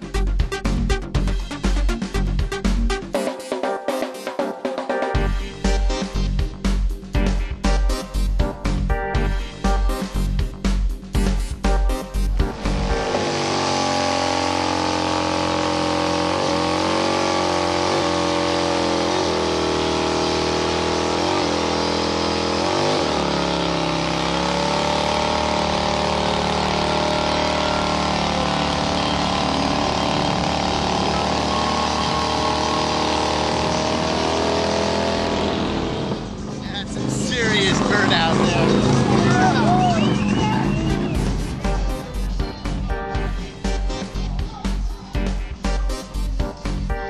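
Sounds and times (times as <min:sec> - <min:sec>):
motorcycle engine revving high: 0:12.1 - 0:44.2.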